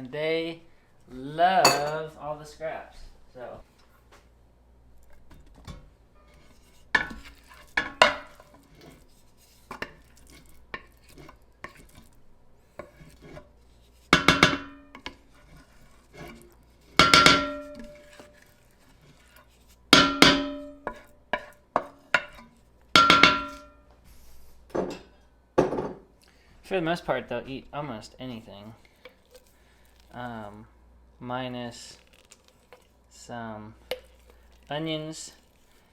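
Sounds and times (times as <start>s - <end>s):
loud clanks on metal pot: 1.7s - 2.0s, 14.2s - 15.0s, 17.0s - 17.9s, 20.0s - 20.7s, 23.0s - 23.7s
metal utensil scraping containers: 15.0s - 19.8s.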